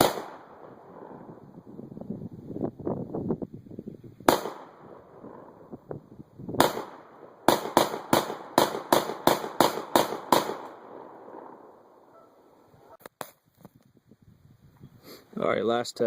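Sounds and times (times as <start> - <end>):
shotgun shots: 0.0 - 1.3, 4.3 - 5.6, 6.6 - 11.7.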